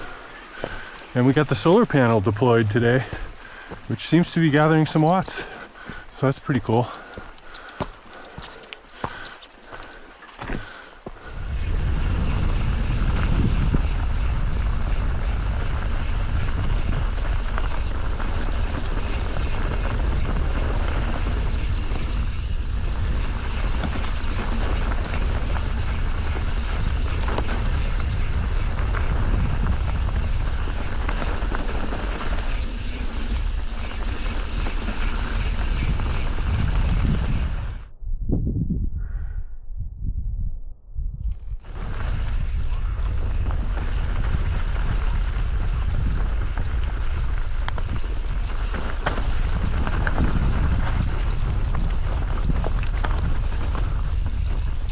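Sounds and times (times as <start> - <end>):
wind buffeting microphone: 0.0 - 54.9
faint clicks: 3.2 - 11.0.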